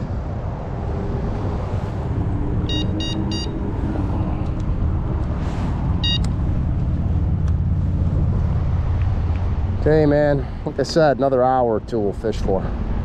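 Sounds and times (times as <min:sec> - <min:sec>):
low rumble: 0:00.0 - 0:10.6
bite alarm beeps: 0:02.7 - 0:03.6, 0:06.0 - 0:06.3.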